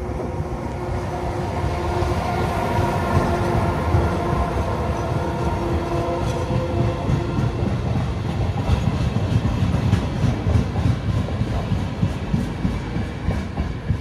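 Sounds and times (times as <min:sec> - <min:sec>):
train rumble: 0:00.0 - 0:14.0
train whine: 0:00.0 - 0:14.0.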